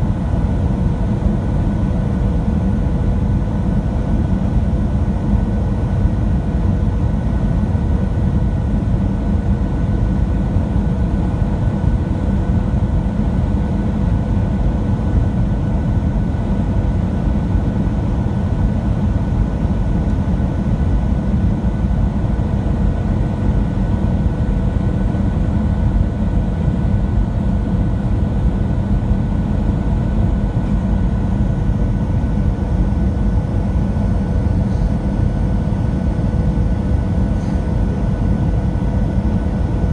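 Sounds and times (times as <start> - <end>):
airplane cabin engine rumble: 12.5 - 39.9.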